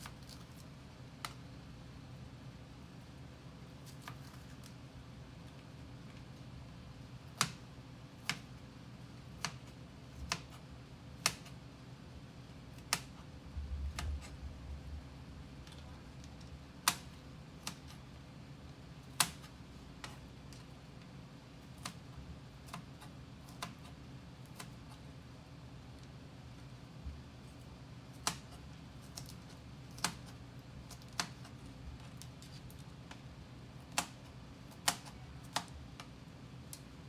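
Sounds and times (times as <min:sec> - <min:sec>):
knife chopping on cutting board: 0:07.3 - 0:07.6, 0:09.4 - 0:10.6, 0:11.2 - 0:11.6, 0:22.6 - 0:25.0, 0:33.9 - 0:35.7.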